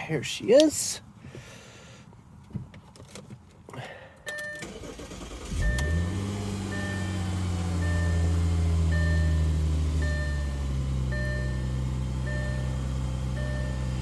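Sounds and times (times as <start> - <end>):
car engine cranking and idling: 0.0 - 14.0
dashboard warning chime: 4.3 - 14.0.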